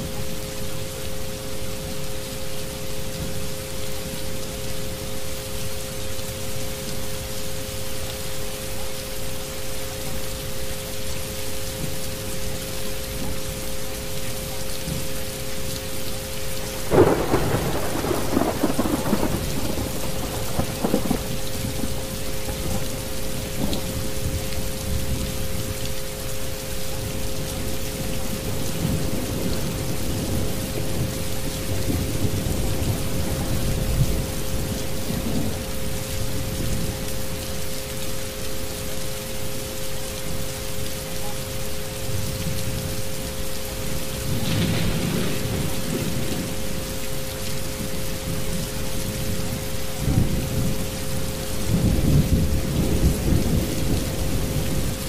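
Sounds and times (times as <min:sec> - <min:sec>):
steady rain: 0:00.0 - 0:55.0
rolling thunder: 0:16.7 - 0:22.9, 0:44.3 - 0:46.8.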